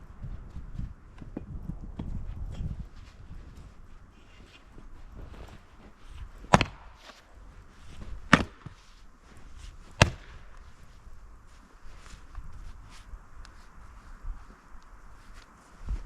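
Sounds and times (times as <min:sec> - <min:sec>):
axe chopping firewood: 0:06.4 - 0:07.2, 0:08.0 - 0:08.8, 0:09.8 - 0:10.6.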